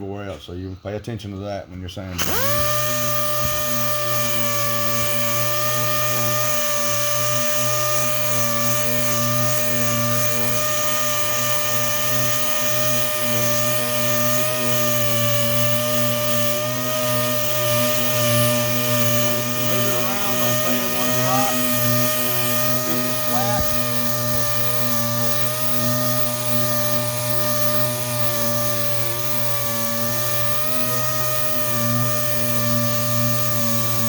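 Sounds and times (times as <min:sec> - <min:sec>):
orbital sander sanding paint: 0:02.2 - 0:34.0.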